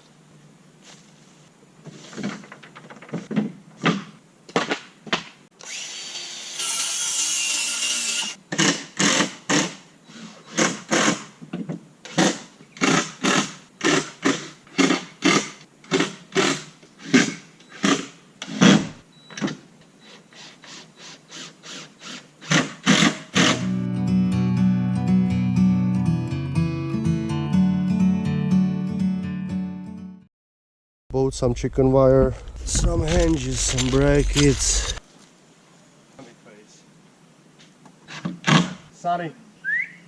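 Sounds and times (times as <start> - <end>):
power drill running: 5.6 - 8.4, 33.1 - 35.0.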